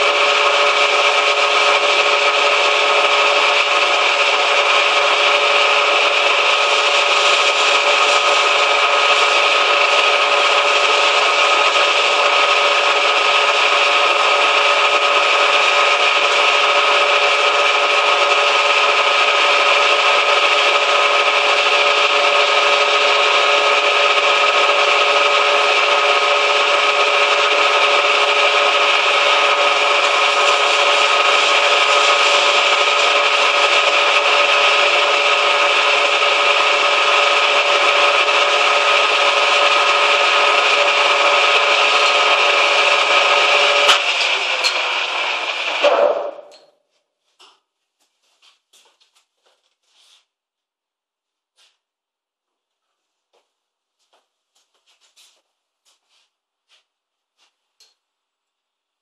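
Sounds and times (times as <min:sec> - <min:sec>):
lathe machining with whine: 0:00.0 - 0:46.7.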